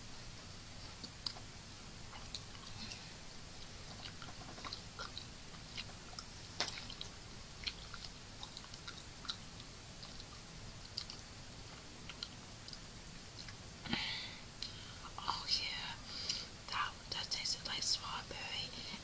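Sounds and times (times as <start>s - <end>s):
wet mouth chewing clicks: 3.6s - 11.2s, 12.0s - 13.6s.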